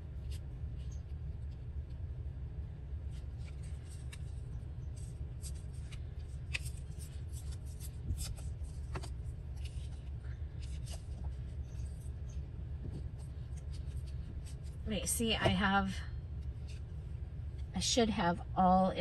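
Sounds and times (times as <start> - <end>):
steady low hum: 0.0 - 19.0
paper rustling and crinkling: 3.1 - 14.8.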